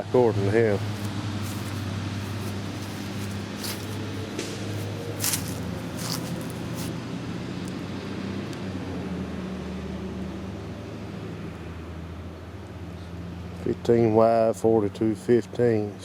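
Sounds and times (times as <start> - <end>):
brief scuffing sounds: 0.8 - 7.0.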